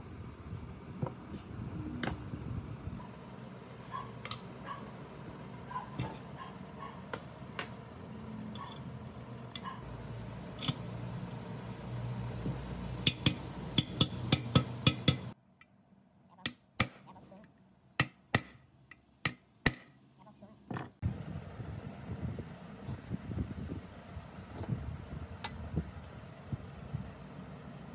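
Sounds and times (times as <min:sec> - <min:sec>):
metal tools clinking: 0:04.2 - 0:04.6
sharp metal taps: 0:13.0 - 0:15.7, 0:18.0 - 0:20.1.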